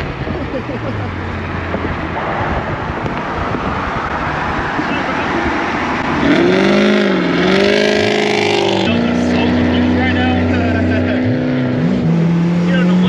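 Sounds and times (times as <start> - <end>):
car engines: 0.0 - 13.0
engine revving: 0.0 - 13.0
wind and road rush: 0.0 - 13.0.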